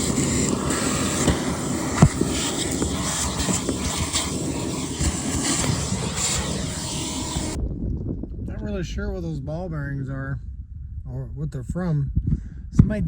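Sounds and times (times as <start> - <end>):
vacuum cleaner running: 0.0 - 7.6.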